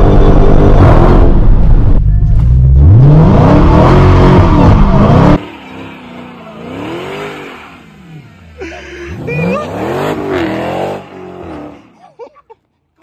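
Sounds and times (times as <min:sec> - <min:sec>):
car engine revving hard: 0:00.0 - 0:01.8, 0:02.6 - 0:08.3, 0:09.1 - 0:11.8.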